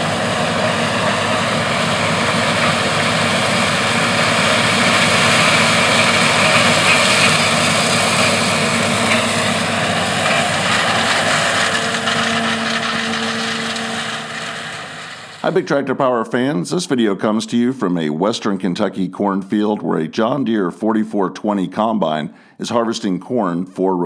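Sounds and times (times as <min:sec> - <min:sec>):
combine harvester engine drone: 0:00.0 - 0:15.6.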